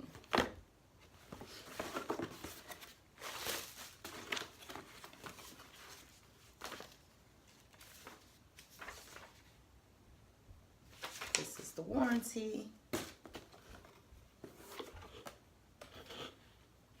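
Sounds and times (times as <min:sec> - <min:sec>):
packaging rustling and crinkling: 0:01.2 - 0:09.6.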